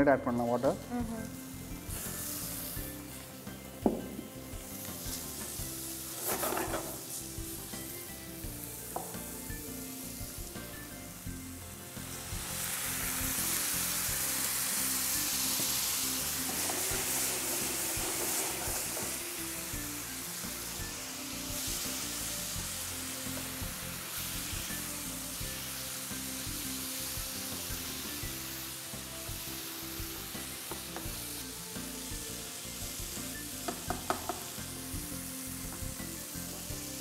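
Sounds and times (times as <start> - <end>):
chicken sizzling in a frying pan: 0.0 - 37.0
spatula knocking against a pan: 33.7 - 34.5.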